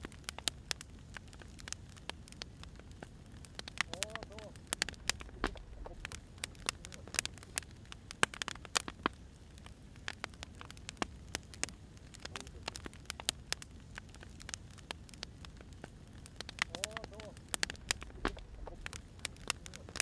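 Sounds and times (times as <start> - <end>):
firewood crackling and popping: 0.0 - 20.0
low steady rumble: 2.7 - 8.2, 17.4 - 20.0.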